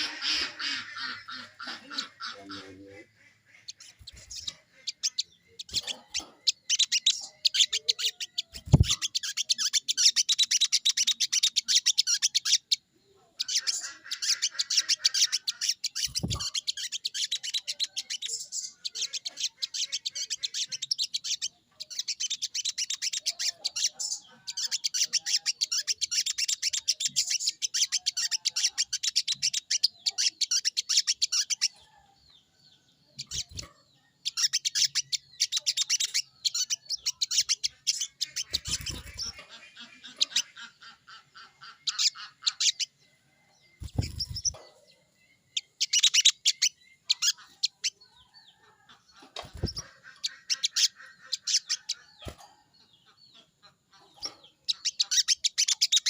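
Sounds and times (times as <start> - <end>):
bird rattling call: 37.3 - 40.4.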